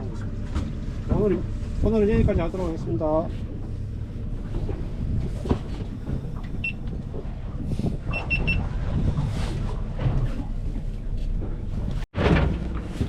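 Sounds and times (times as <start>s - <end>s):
boat engine rumbling: 0.0s - 13.0s
engine knocks: 3.4s - 13.0s.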